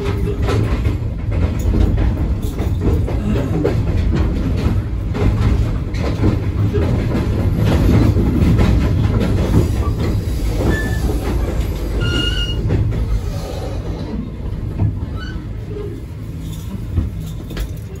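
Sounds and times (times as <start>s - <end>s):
train wheels rumbling on rail: 0.0s - 18.0s
brief wheel squeals: 10.6s - 11.2s, 11.9s - 12.7s.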